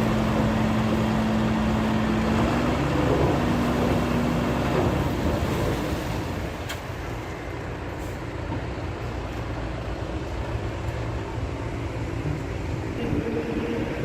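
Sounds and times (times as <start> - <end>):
heavy machinery running: 10.4 - 14.0.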